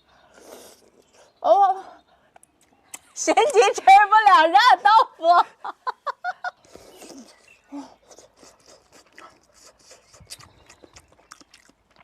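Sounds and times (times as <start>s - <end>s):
mouth clicks: 2.3s - 3.2s, 6.6s - 12.0s
soft chewing: 6.6s - 12.0s.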